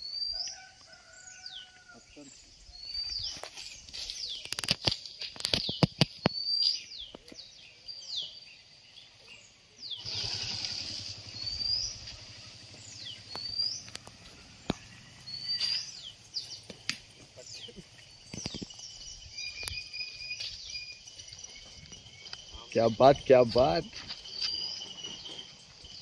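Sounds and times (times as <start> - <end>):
bird whistling calls: 10.0 - 16.1, 24.0 - 26.0
motorbike engine passing: 10.0 - 16.7.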